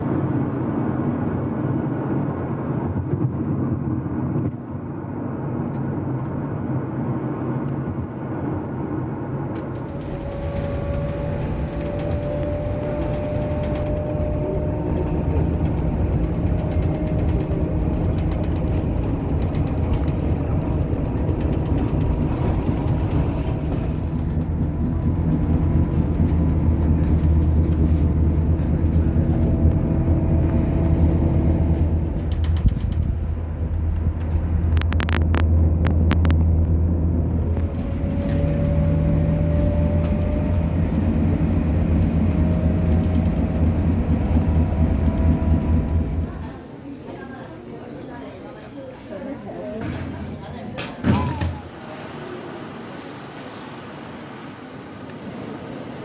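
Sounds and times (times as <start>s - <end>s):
low vehicle rumble: 8.4s - 47.4s, 49.1s - 52.8s.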